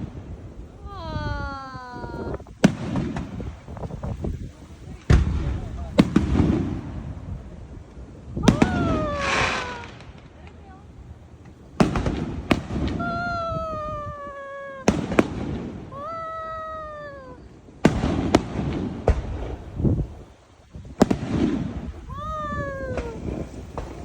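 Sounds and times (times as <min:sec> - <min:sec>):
fireworks bangs: 0:00.0 - 0:24.0
falling firework wails: 0:00.7 - 0:03.5, 0:08.4 - 0:10.2, 0:11.8 - 0:19.8, 0:21.0 - 0:24.0.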